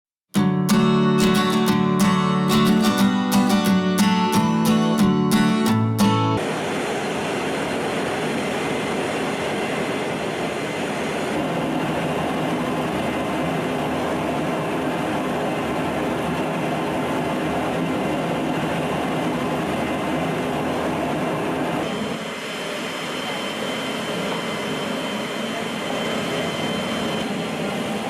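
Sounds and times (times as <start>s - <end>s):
aircraft cabin engine drone: 5.6s - 28.0s.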